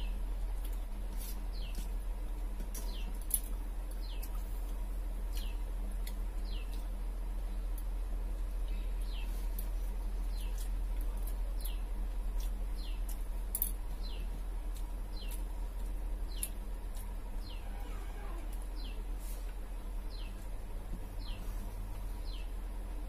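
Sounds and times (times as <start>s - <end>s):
low hum: 0.0s - 23.0s
bird chirping: 1.5s - 1.9s, 2.8s - 3.2s, 4.0s - 4.4s, 5.3s - 5.7s, 6.4s - 6.9s, 8.6s - 10.7s, 11.6s - 13.2s, 14.0s - 15.5s, 16.2s - 16.6s, 17.3s - 19.1s, 20.0s - 20.5s, 21.2s - 22.6s.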